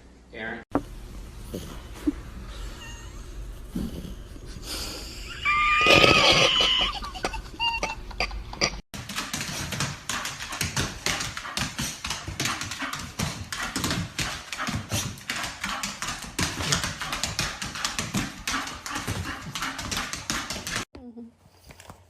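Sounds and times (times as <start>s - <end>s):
dog claws tapping and scratching: 8.6s - 20.9s.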